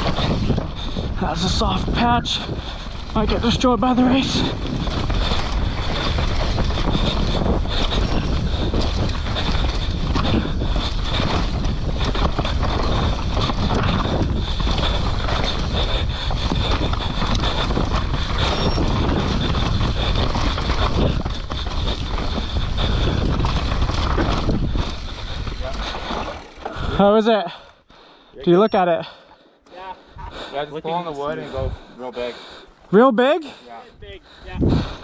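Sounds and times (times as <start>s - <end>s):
wind rushing over microphone: 0.0s - 27.0s, 34.0s - 35.0s
bike clattering over rough ground: 0.0s - 27.4s
tyres on dirt: 0.0s - 33.8s.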